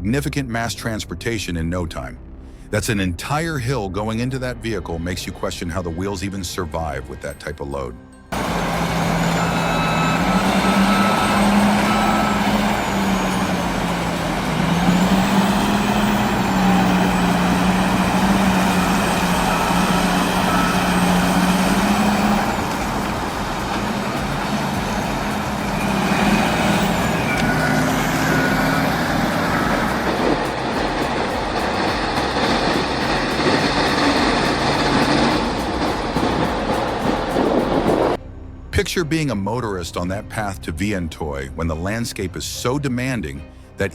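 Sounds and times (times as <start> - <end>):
diesel engine droning: 8.3 - 38.8.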